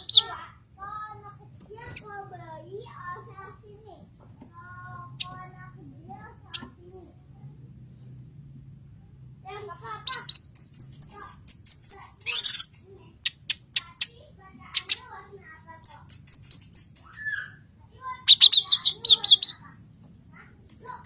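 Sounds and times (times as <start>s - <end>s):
bird chirping and trilling: 0.0s - 0.5s, 5.0s - 7.2s, 9.8s - 21.0s.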